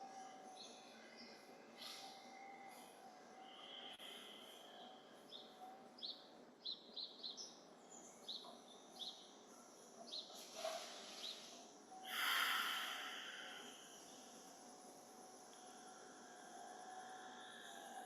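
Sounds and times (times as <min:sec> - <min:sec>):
faint outdoor hum: 0:00.0 - 0:18.0
small birds chirping: 0:03.5 - 0:14.6.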